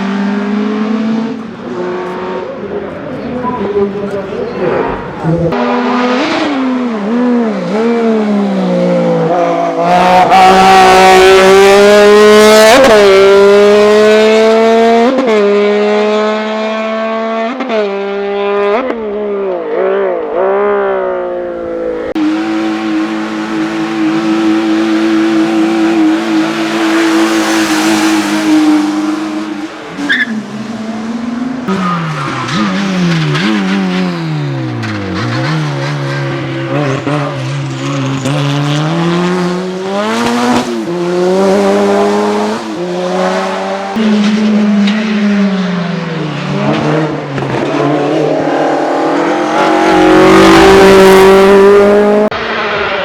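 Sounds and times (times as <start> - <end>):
race car engine at high revs: 0.0 - 53.0
tyre squeal: 27.3 - 30.5.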